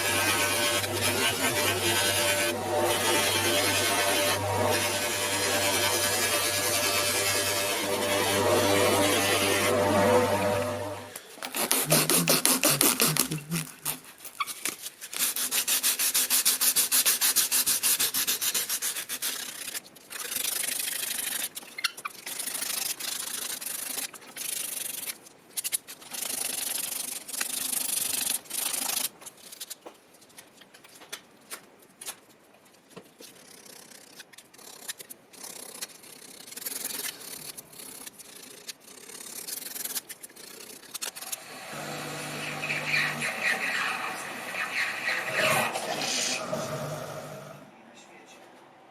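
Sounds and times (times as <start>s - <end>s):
hand sanding metal: 0.0s - 14.2s, 15.1s - 19.8s, 39.4s - 46.8s.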